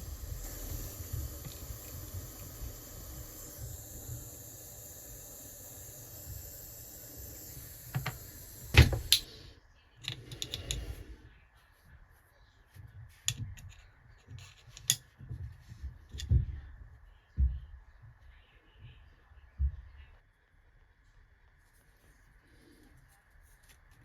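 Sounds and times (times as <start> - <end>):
steady hiss: 0.0 - 9.5
small tools and metal parts clicking: 10.0 - 10.9.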